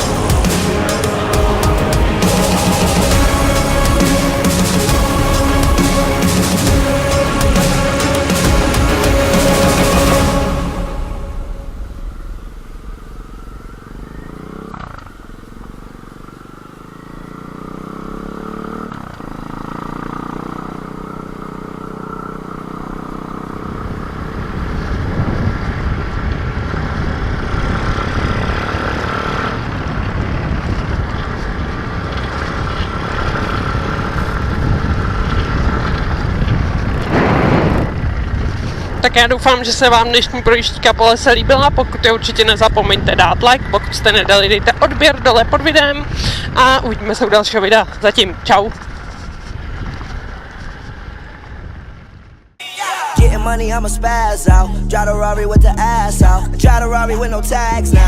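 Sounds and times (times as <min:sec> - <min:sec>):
motorbike engine running: 0:00.0 - 0:11.0, 0:12.4 - 0:52.4
wind noise: 0:23.6 - 0:52.6.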